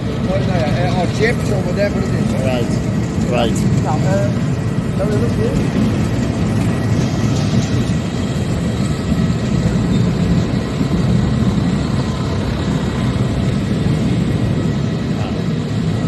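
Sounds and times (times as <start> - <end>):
machinery droning: 0.0 - 16.0.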